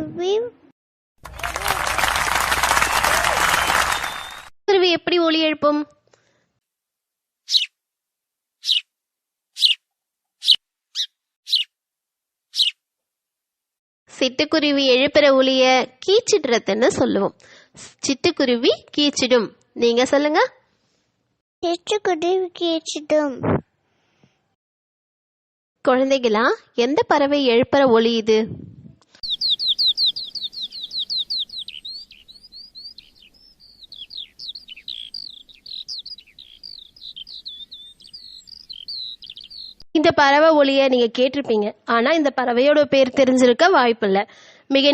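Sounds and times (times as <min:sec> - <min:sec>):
skylark singing: 0:03.6 - 0:04.5, 0:29.2 - 0:39.8
sparrow chirping: 0:07.5 - 0:07.7, 0:08.6 - 0:08.9, 0:09.6 - 0:09.8, 0:10.4 - 0:11.7, 0:12.5 - 0:12.8, 0:29.2 - 0:39.8.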